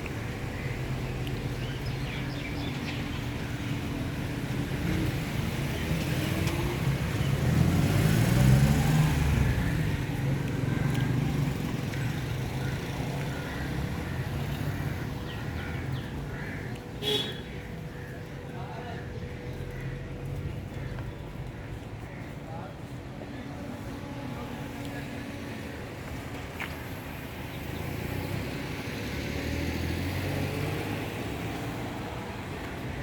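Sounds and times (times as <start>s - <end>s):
vehicle passing by: 4.2s - 16.0s, 26.9s - 32.7s.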